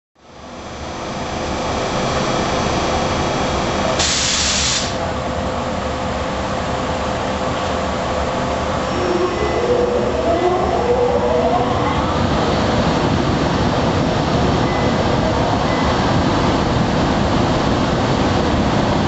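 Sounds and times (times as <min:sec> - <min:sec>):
cooling blowers running: 0:00.3 - 0:19.0
short air hiss: 0:04.0 - 0:05.0.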